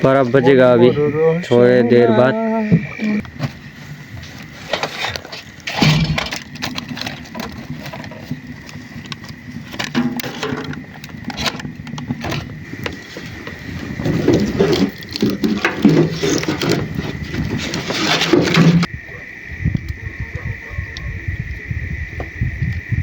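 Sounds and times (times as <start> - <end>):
low voices: 0.0 - 3.3, 17.5 - 22.1
clatter of objects being handled: 4.2 - 18.9.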